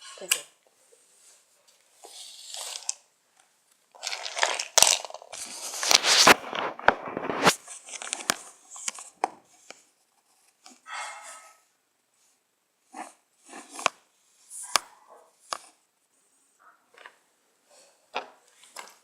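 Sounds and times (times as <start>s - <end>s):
toys rustling: 0.1s - 11.6s.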